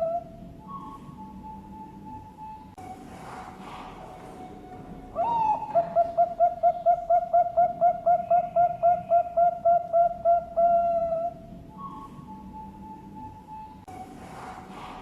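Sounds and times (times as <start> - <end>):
dove cooing: 0.0 - 1.9, 3.6 - 13.0.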